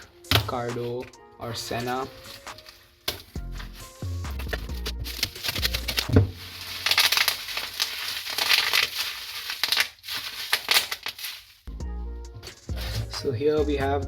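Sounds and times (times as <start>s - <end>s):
packaging crinkling: 1.7s - 11.7s, 12.4s - 13.3s.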